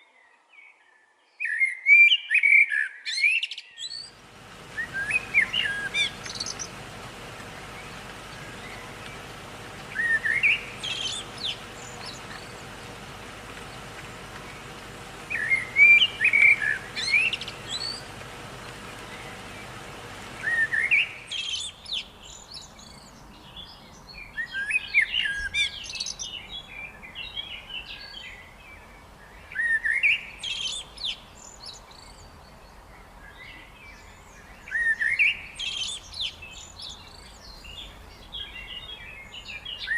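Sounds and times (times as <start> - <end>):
songbird chirping phrases: 0.0 - 39.9
background hiss: 4.0 - 24.1.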